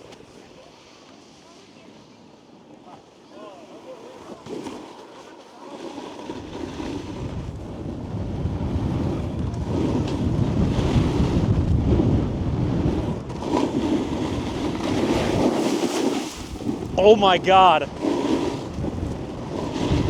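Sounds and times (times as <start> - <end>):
snowboard carving on snow: 0.0 - 20.0
wind rushing over microphone: 6.4 - 20.0.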